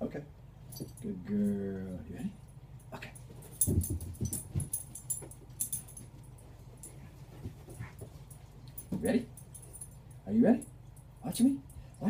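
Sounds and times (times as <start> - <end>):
light metallic jingling: 2.8 - 12.0.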